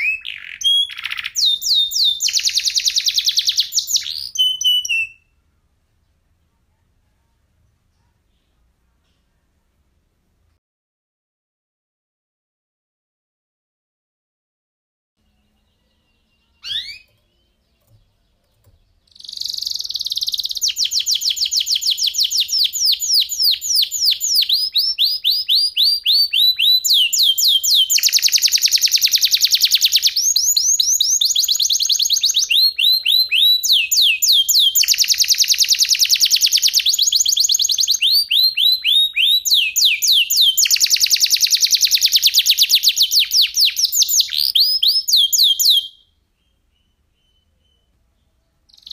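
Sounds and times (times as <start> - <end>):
canary singing trills: 0.0 - 5.4, 15.2 - 48.9.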